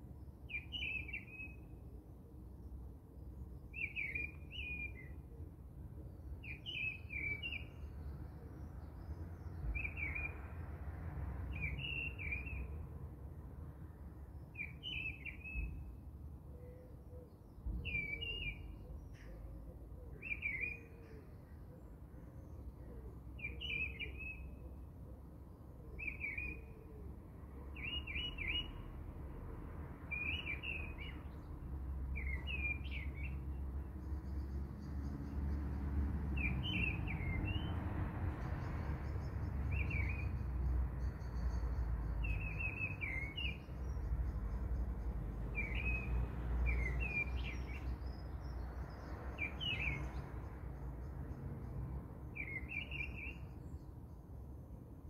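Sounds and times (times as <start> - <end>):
small bird chirping: 39.0 - 51.1.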